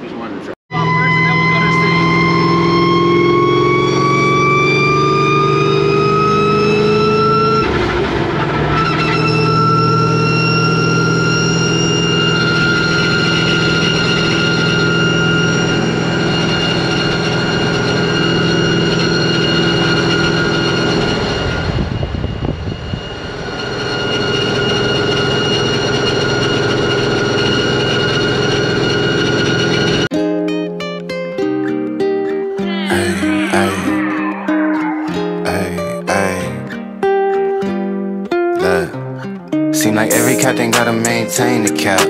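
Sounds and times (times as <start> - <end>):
supercharger whine: 0.7 - 30.1, 32.6 - 36.0.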